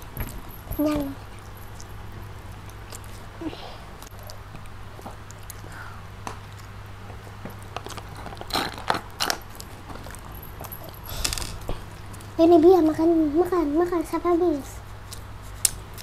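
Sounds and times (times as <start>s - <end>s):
chewing and mouth noises: 0.0s - 12.4s
low steady hum: 0.0s - 16.0s.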